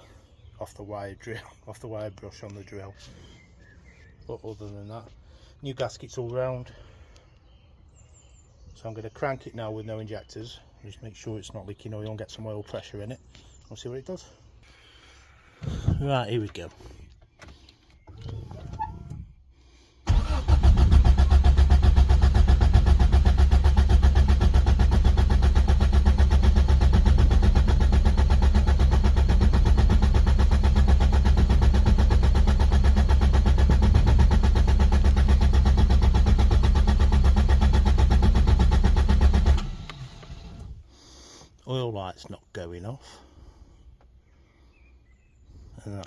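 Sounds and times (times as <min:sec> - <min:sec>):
engine cranking without firing: 0:15.6 - 0:19.4, 0:20.0 - 0:40.8.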